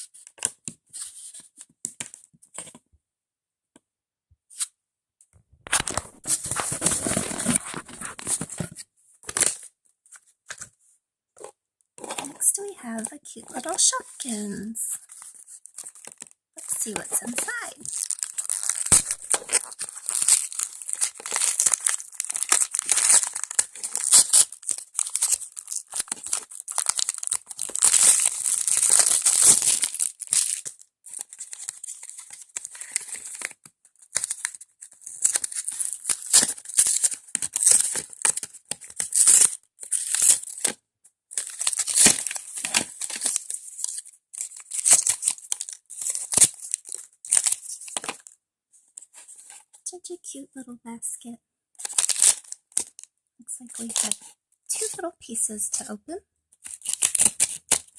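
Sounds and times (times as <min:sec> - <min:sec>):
toy packaging tearing and crinkling: 0:05.7 - 0:10.7, 0:11.4 - 0:48.4, 0:51.8 - 0:55.1, 0:56.6 - 0:57.9.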